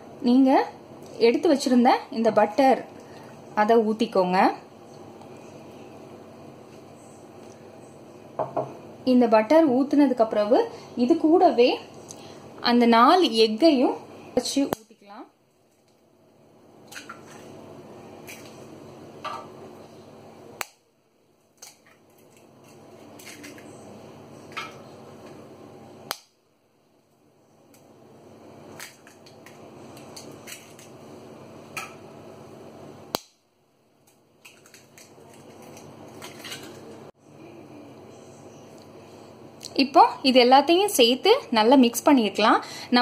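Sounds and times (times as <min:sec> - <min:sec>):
eggs cracking against bowl: 0:34.0 - 0:37.0.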